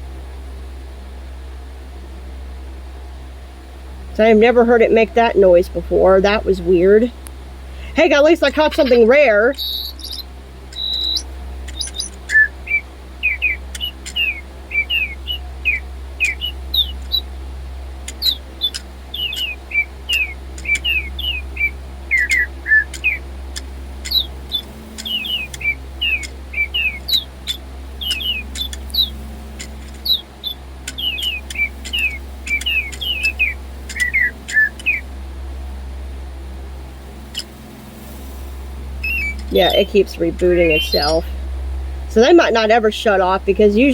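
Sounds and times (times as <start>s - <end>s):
toy birds chirping: 7.8s - 17.3s, 18.0s - 35.1s, 37.3s - 37.5s, 39.0s - 41.3s, 42.1s - 43.9s
sharp clicks: 9.6s - 15.1s, 18.0s - 21.4s, 22.1s - 35.0s, 37.3s - 37.6s.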